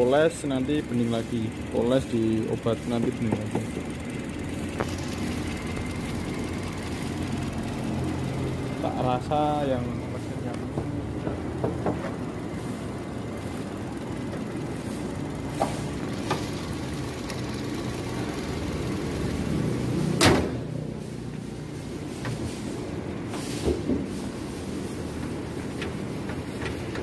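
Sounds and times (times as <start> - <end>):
car engine idling: 0.0 - 20.2
car bonnet slamming shut: 20.2 - 20.6.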